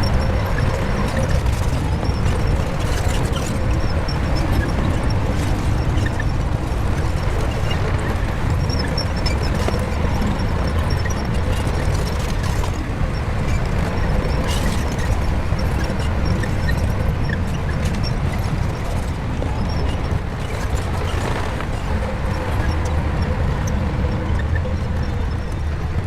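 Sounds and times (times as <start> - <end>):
bulldozer diesel engine rumbling: 0.0 - 26.0.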